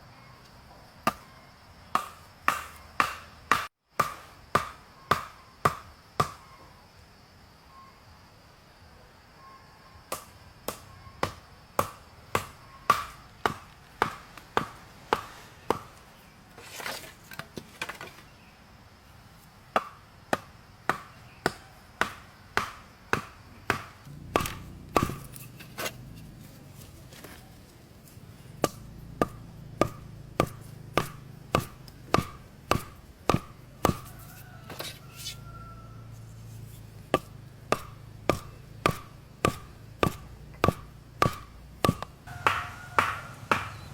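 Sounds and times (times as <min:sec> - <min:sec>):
sharp chopping strikes: 0:02.0 - 0:06.4, 0:20.9 - 0:26.0, 0:28.6 - 0:34.9, 0:37.0 - 0:43.8.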